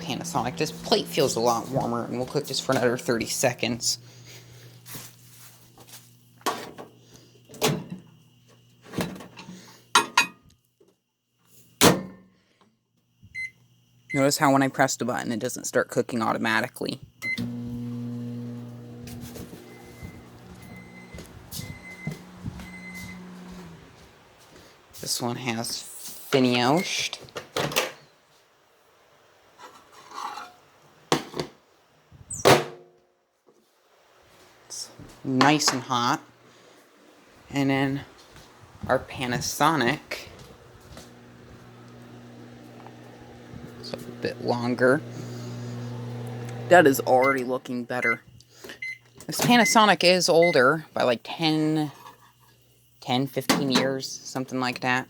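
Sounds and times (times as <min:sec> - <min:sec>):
microwave oven humming: 0:00.0 - 0:05.4, 0:17.2 - 0:24.1, 0:39.6 - 0:48.2
knocking footsteps: 0:19.0 - 0:24.7.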